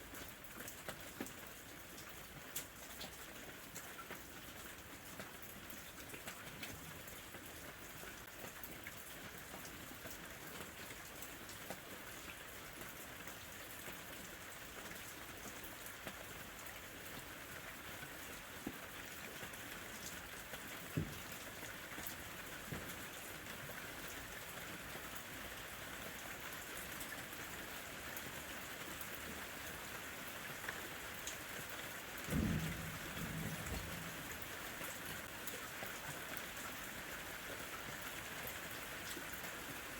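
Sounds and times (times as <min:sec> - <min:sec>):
rain falling: 0:00.0 - 0:39.9
raindrops ticking: 0:32.2 - 0:36.1.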